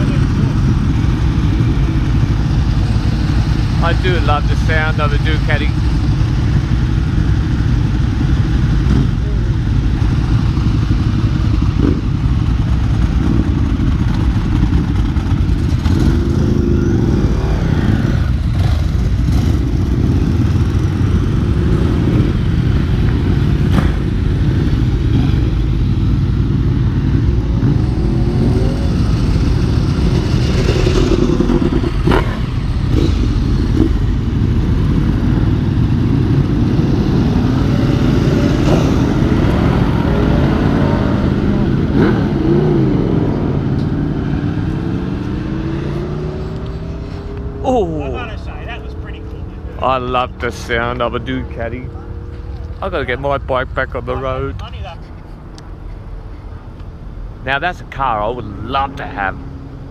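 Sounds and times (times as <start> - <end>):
motorcycle engines idling: 0.0 - 44.7, 45.3 - 57.3.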